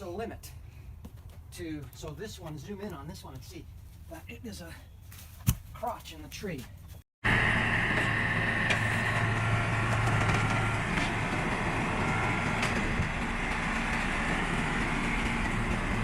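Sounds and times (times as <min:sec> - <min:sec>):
machinery drone: 0:07.2 - 0:16.0.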